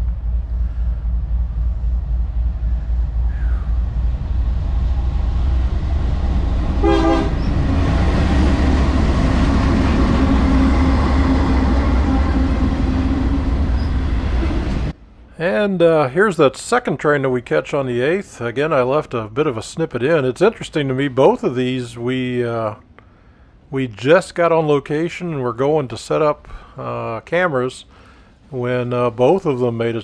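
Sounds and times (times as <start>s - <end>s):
freight train rumbling past: 0.0s - 22.8s
train horn toot: 6.8s - 7.7s.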